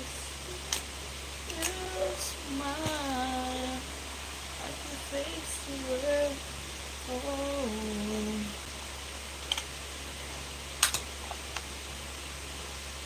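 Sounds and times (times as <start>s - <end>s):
woman humming: 1.5s - 3.9s, 7.1s - 8.6s.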